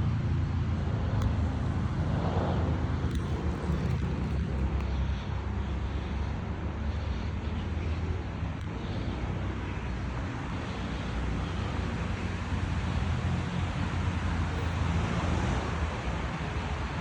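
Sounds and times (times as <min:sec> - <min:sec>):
constant low rumble: 0:00.0 - 0:17.0.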